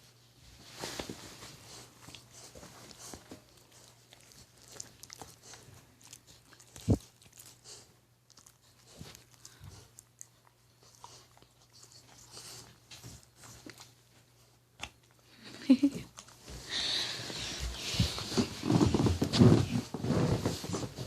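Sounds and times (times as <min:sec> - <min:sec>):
dog chewing on a toy: 0:01.7 - 0:15.3.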